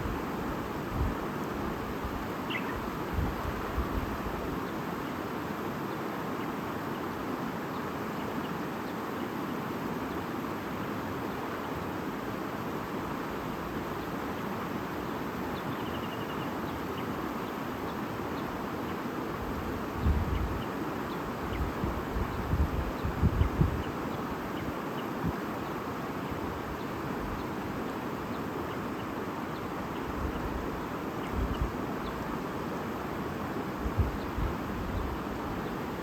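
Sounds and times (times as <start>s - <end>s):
wind rumbling on microphone: 0.0s - 4.5s, 19.4s - 20.7s, 21.3s - 24.1s, 30.2s - 32.4s, 33.8s - 36.0s
faint bird trill: 2.4s - 2.9s, 15.6s - 17.6s.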